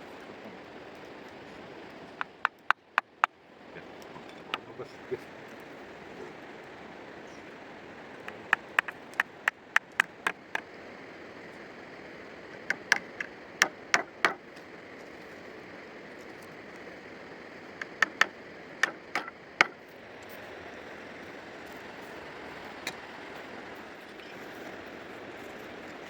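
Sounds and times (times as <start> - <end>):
sharp knocks: 8.3 - 10.6, 12.6 - 14.4, 17.8 - 19.8.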